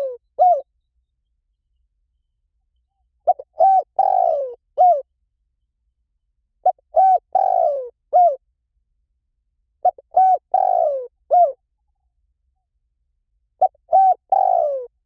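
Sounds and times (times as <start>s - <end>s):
dove cooing: 0.0s - 0.7s, 3.2s - 5.1s, 6.6s - 8.4s, 9.8s - 11.6s, 13.6s - 15.0s.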